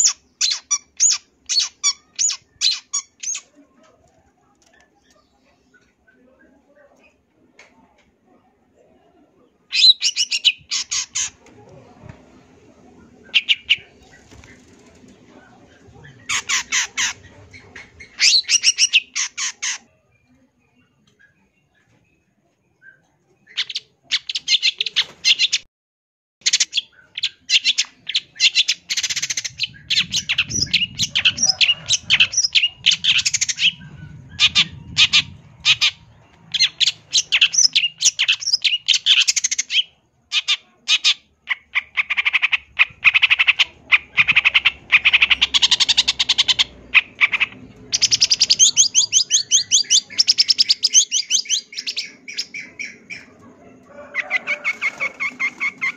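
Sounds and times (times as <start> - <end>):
bird singing rapid chattering song: 0.0 - 3.5, 9.7 - 11.4, 13.2 - 15.2, 15.8 - 19.8, 26.4 - 53.3.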